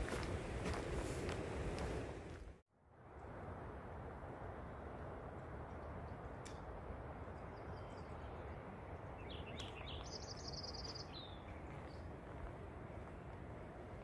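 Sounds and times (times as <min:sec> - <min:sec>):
songbird chirping and trilling: 0:07.5 - 0:12.0.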